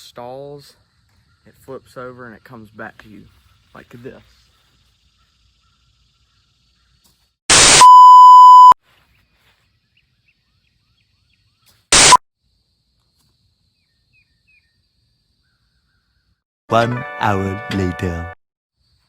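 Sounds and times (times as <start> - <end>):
burst of static: 7.5 - 8.8, 11.9 - 12.2
censor beep: 7.5 - 8.8.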